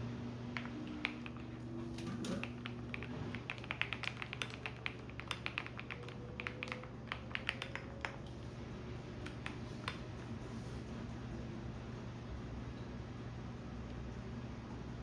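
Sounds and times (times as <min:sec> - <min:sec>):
washing machine humming: 0:00.0 - 0:15.0
computer keyboard typing: 0:00.6 - 0:08.3.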